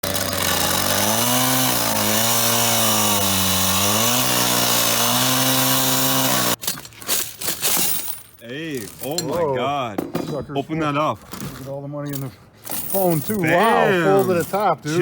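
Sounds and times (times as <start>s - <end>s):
power tool cutting metal: 0.0s - 6.6s.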